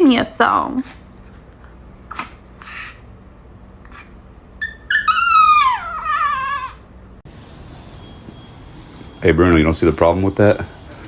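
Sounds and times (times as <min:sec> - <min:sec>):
dog howling: 0:03.9 - 0:06.9.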